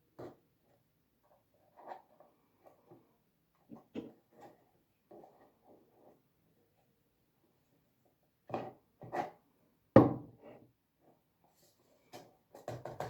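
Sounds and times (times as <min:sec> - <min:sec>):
objects knocking on a table: 0:10.0 - 0:10.3.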